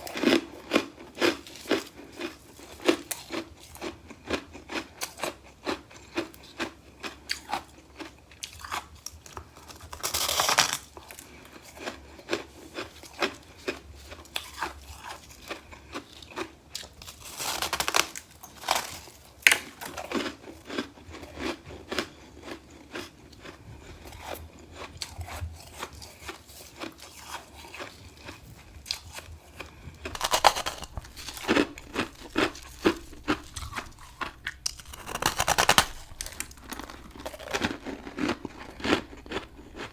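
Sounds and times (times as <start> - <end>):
frost crunched and chewed: 0.0 - 39.9.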